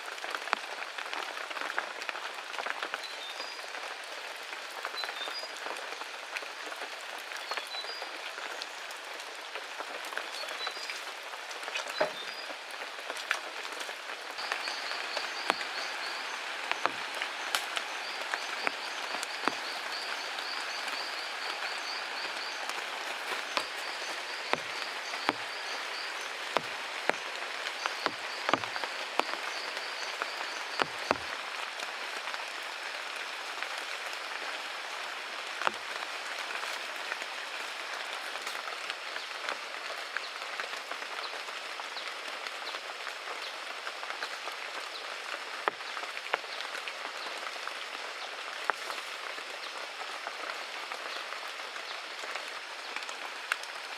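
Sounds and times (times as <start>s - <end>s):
steady outdoor hiss: 0.0s - 53.9s
sharp knocks and taps: 24.5s - 25.5s, 27.8s - 29.4s.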